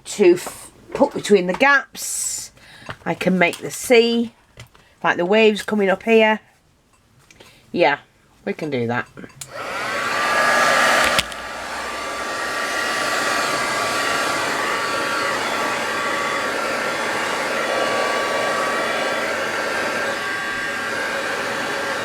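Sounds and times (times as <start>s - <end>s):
hot-air blower running: 9.4s - 22.0s.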